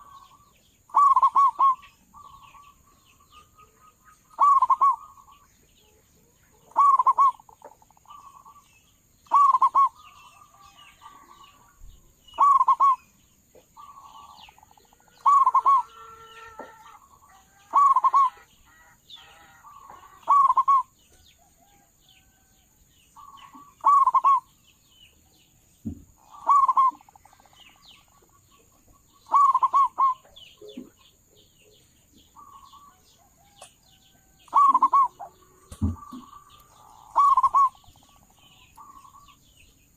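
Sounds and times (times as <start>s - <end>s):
dove cooing: 0.0s - 5.4s, 6.6s - 8.6s, 9.3s - 11.7s, 12.3s - 13.0s, 13.8s - 20.9s, 23.2s - 24.5s, 26.2s - 27.6s, 29.2s - 31.0s, 34.4s - 39.3s
faint small bird chirps: 0.0s - 22.5s, 23.2s - 39.8s.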